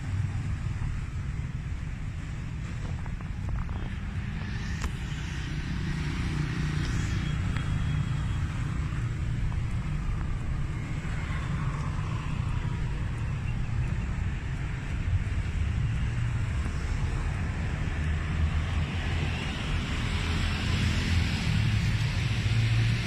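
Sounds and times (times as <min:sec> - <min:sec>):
motorcycle engine rumble: 0:00.0 - 0:17.7
road noise: 0:00.0 - 0:23.0
rushing noise: 0:00.0 - 0:23.0.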